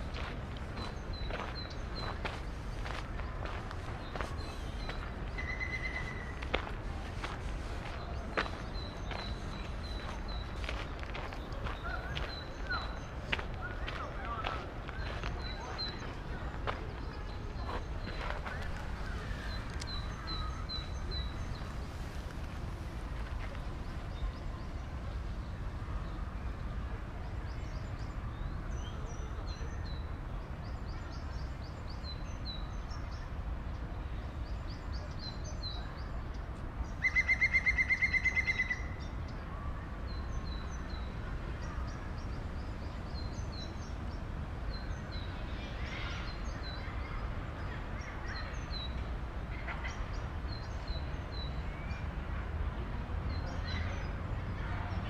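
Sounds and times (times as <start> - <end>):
small birds chirping: 0.0 - 26.7
city background rumble: 0.0 - 55.0.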